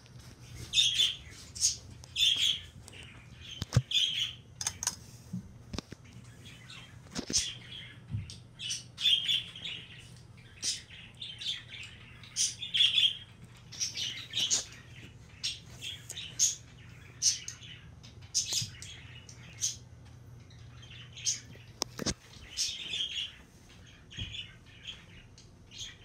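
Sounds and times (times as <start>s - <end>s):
ceiling fan humming: 0.0s - 26.0s
bird chirps: 6.2s - 19.9s.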